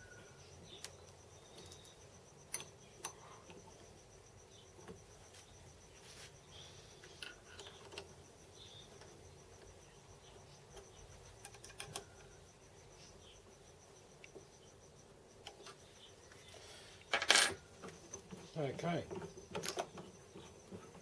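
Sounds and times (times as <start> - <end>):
small metal parts clicking: 11.4 - 12.3, 17.1 - 18.4.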